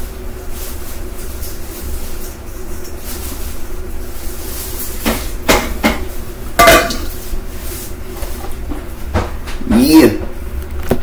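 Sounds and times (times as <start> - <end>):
steady low hum: 0.0 - 11.0
dishes knocking on counter: 8.7 - 9.6.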